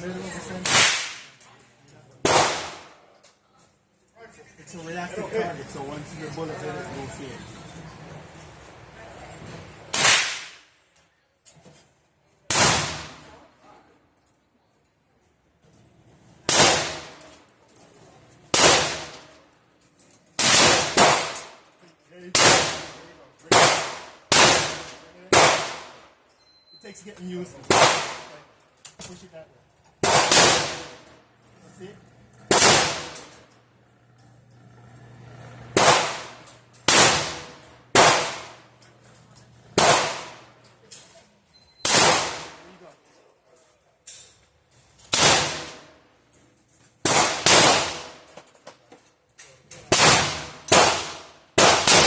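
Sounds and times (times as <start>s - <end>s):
gunshots with echo: 0.6s - 1.3s, 2.2s - 3.0s, 18.5s - 19.2s, 20.4s - 21.6s, 22.3s - 26.0s, 27.7s - 28.3s, 30.0s - 31.0s, 32.5s - 33.2s, 35.7s - 38.6s, 39.8s - 40.5s, 41.9s - 42.6s, 49.9s - 52.0s.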